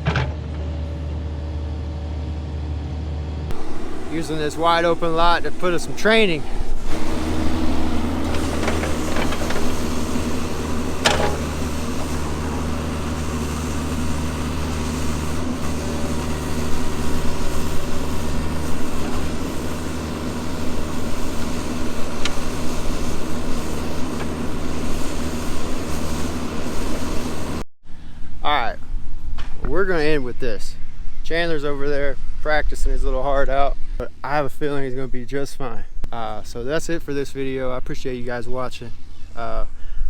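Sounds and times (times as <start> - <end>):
diesel engine running: 0.0 - 27.6.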